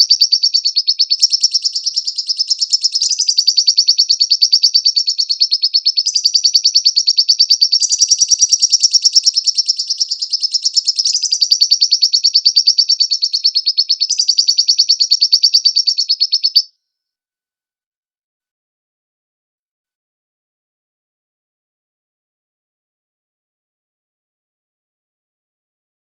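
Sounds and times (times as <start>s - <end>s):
lovebird chattering trill: 0.0s - 16.7s.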